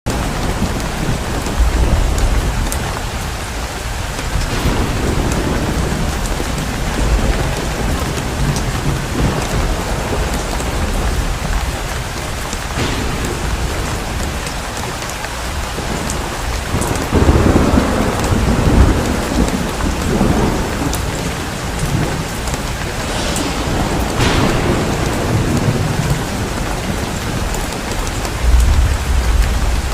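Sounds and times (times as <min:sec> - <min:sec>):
heavy rain pouring: 0:00.0 - 0:29.9
thunder rumbling: 0:00.1 - 0:29.9.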